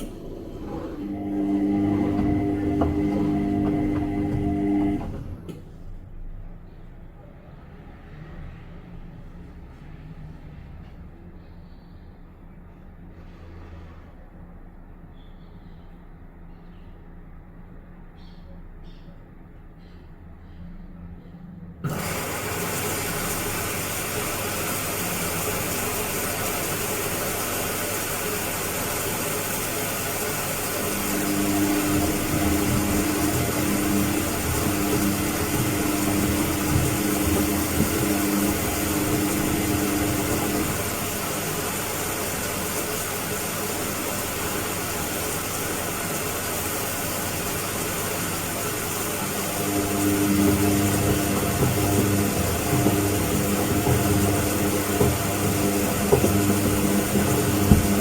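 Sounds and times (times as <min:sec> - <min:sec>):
humming motor tone: 0:00.0 - 0:05.6, 0:30.9 - 0:41.2, 0:49.5 - 0:58.0
washing machine churning: 0:00.0 - 0:06.2, 0:21.8 - 0:58.0.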